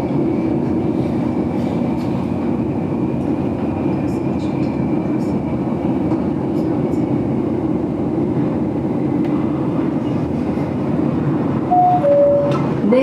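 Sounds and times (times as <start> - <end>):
train rumbling on track: 0.0 - 13.0
onboard chime tone: 11.7 - 12.6.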